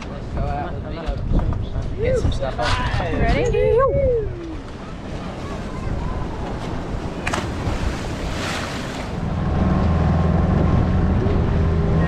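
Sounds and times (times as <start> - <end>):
water rushing past boat: 4.4 - 12.0
boat engine droning: 4.5 - 12.0
wind rushing: 5.7 - 9.7.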